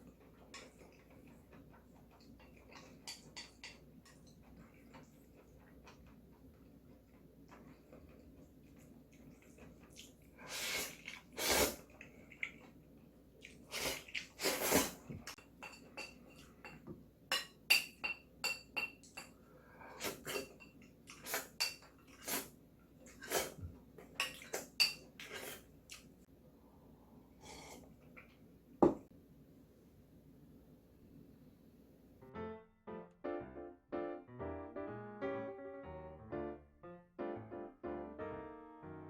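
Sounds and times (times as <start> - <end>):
utensils clinking against a bowl: 2.2 - 4.6, 15.3 - 19.4, 20.2 - 20.9, 21.6 - 22.3, 24.2 - 25.4
noodle slurping: 9.4 - 12.6, 13.5 - 15.1.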